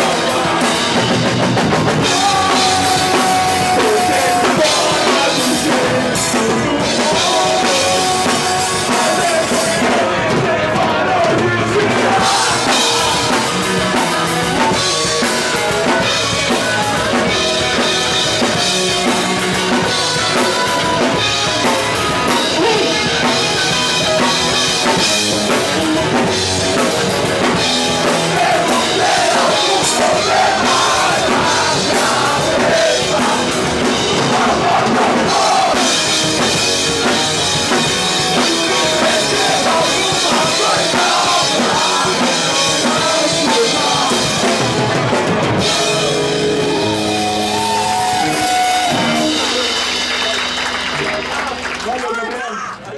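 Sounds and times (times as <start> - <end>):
punk rock band playing: 0.0 - 52.9
person singing: 1.9 - 17.8, 28.0 - 44.7.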